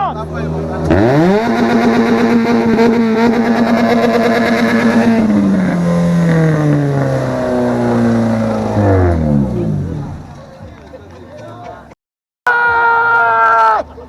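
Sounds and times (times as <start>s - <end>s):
race car engine revving: 0.0s - 10.6s.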